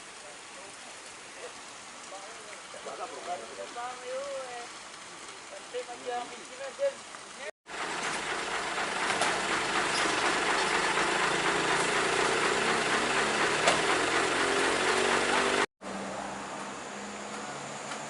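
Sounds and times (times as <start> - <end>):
heavy truck engine running: 7.7 - 15.7.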